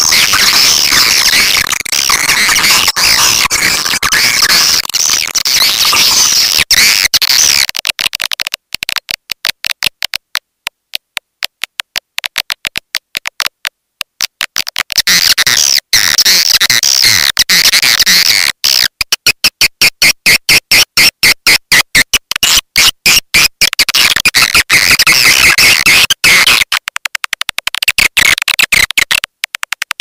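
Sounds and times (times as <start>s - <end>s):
shrill twittering bird chirps: 0.0s - 7.6s
rapid clicks: 0.0s - 15.4s, 23.6s - 30.0s.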